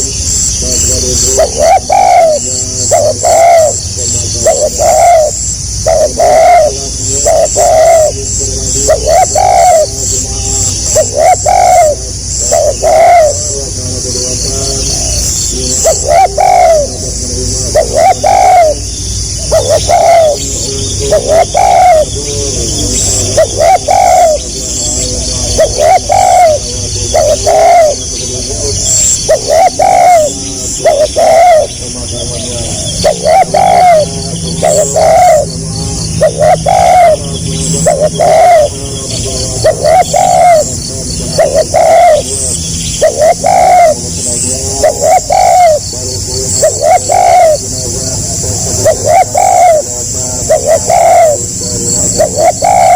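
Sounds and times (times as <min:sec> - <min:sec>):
dove cooing: 0:00.0 - 0:52.9.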